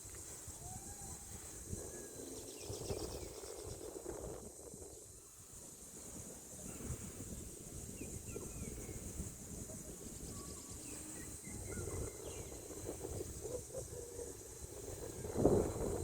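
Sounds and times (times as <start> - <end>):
insect drone: 0.0 - 16.0
bird chirps: 10.0 - 12.6.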